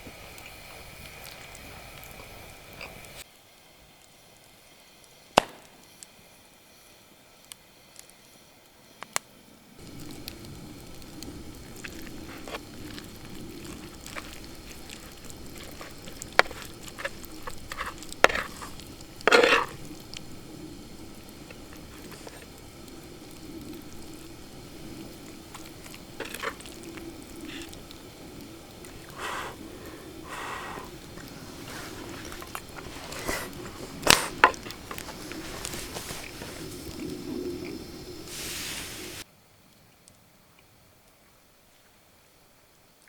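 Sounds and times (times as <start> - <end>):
food sizzling in a pan: 9.7 - 39.3.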